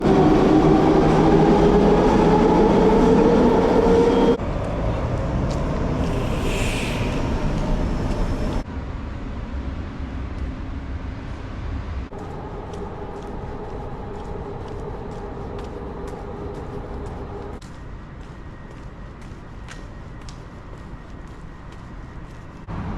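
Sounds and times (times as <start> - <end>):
vehicle engine whine: 12.0 - 17.6.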